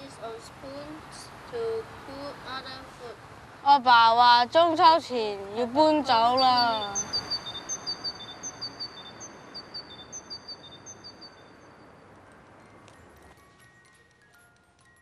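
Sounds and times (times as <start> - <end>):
small birds chirping: 5.5 - 11.8
faint chime-like notes: 9.6 - 15.0.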